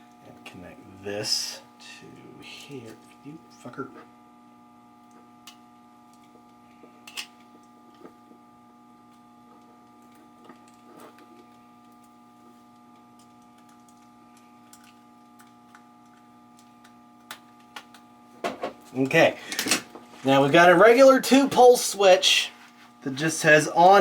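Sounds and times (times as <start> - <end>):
faint steady hum: 0.0 - 24.0
clicks and taps of wiring work: 9.1 - 20.1.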